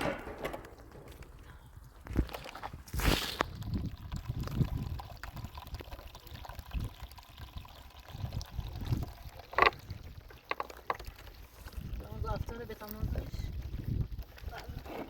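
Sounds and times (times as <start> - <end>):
sharp knocks: 0.0 - 1.2
water pouring onto ground: 2.0 - 15.0.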